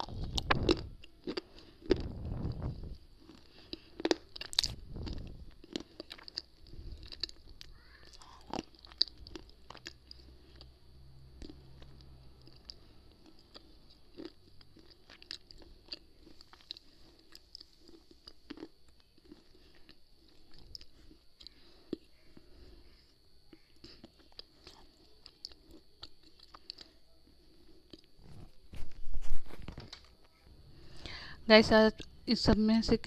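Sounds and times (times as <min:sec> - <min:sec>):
person crunching hard pieces: 0:00.0 - 0:10.7.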